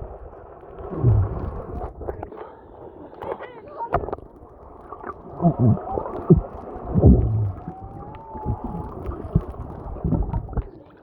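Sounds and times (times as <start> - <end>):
whale moans underwater: 0.8 - 1.8, 5.0 - 10.6.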